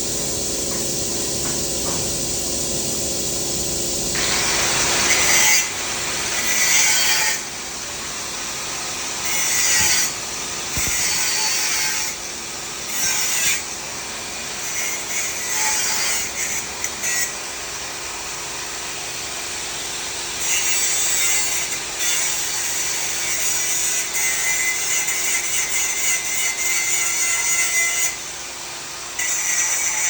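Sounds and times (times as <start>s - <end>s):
steady hiss: 0.0s - 11.7s.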